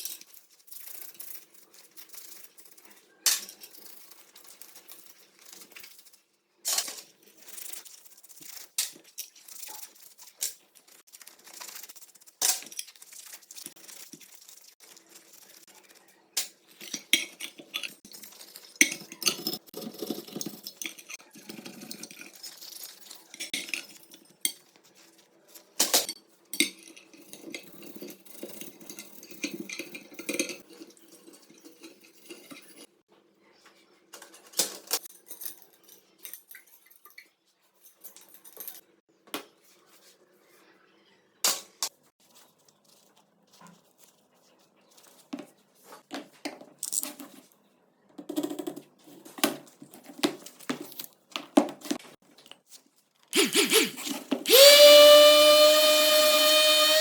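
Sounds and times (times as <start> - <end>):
metal tools clinking and scraping: 16.3 - 33.0, 34.2 - 39.0.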